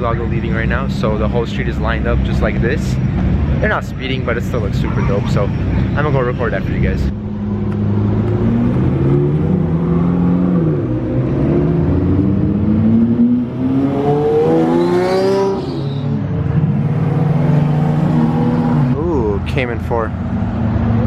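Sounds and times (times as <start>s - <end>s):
sports car engines accelerating past: 7.2s - 19.0s.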